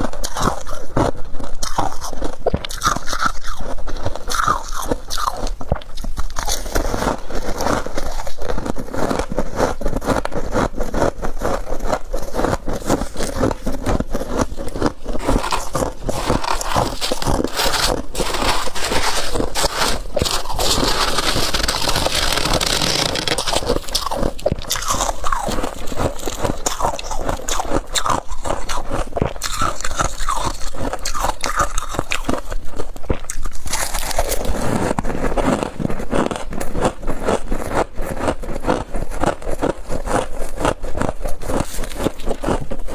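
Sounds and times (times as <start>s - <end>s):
chewing crunchy frost: 0.0s - 42.9s
scraping of frost: 6.3s - 32.5s.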